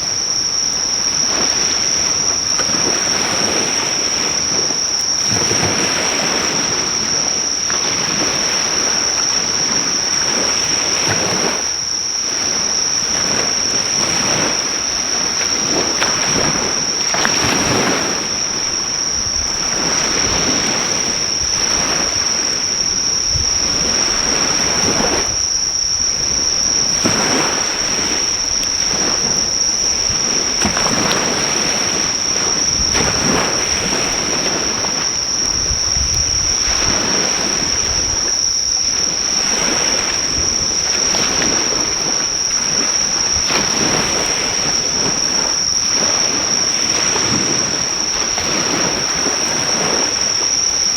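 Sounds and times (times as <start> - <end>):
insects calling: 0.0 - 50.9
sea waves breaking on shore: 0.0 - 50.9.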